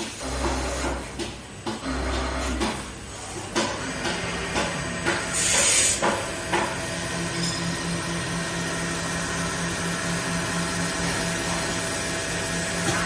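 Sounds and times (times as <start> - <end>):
lathe machine hum: 3.8 - 13.0.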